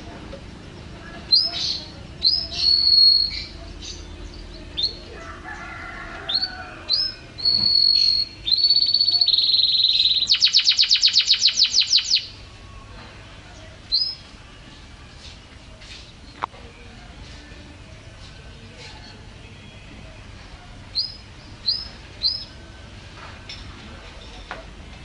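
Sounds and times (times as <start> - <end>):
bird singing whistled notes and trills: 0.7 - 12.8, 13.5 - 14.3, 20.8 - 22.8.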